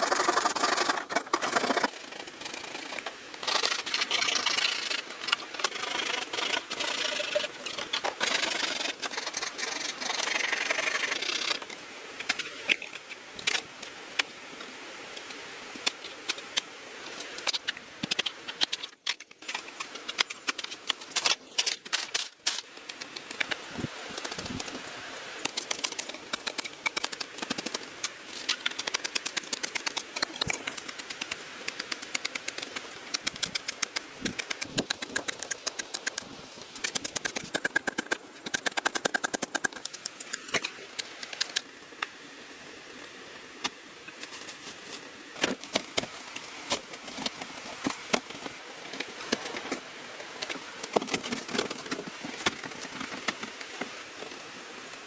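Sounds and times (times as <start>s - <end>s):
bamboo clicks and knocks: 15.2s - 42.2s.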